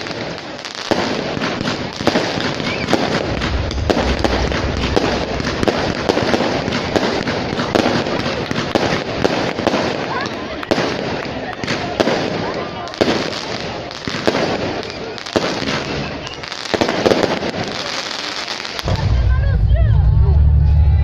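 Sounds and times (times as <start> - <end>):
fireworks bangs and crackle: 0.0 - 20.7
deep rumble: 3.0 - 7.6, 18.9 - 21.0.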